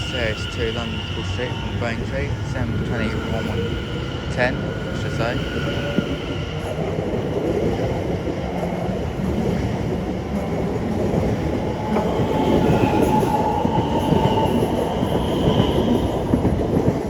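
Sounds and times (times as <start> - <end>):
steady high whine: 0.0 - 13.6
train wheels rumbling on rails: 0.0 - 17.0.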